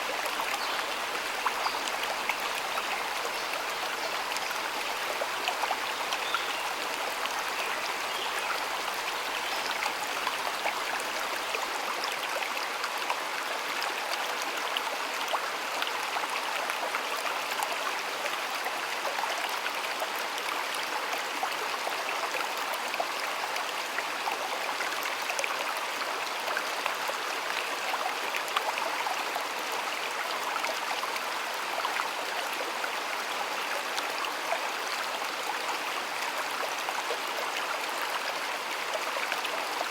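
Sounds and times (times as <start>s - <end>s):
shallow stream flowing: 0.0s - 39.9s.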